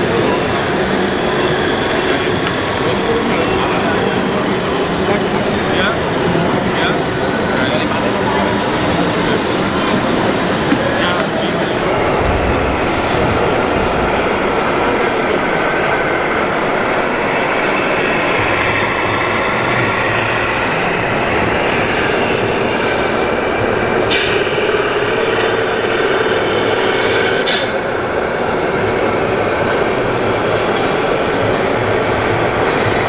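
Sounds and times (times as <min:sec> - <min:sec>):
electric motors whining: 0:00.0 - 0:33.0.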